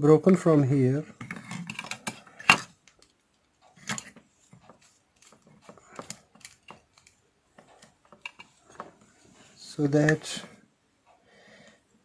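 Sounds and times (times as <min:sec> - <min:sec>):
plastic parts clicking and tapping: 0:01.2 - 0:09.0.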